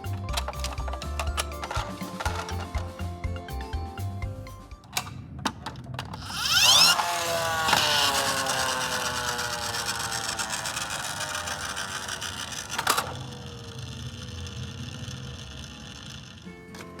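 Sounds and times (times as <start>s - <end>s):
music: 0.0s - 5.2s, 16.5s - 17.0s
small mechanism whirring: 6.1s - 17.0s.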